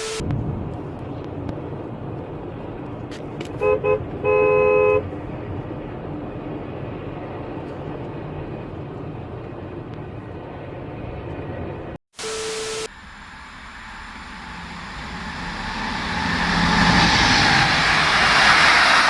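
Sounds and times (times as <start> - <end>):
road and engine noise: 0.0 - 19.0
vehicle horn honking: 3.6 - 5.1.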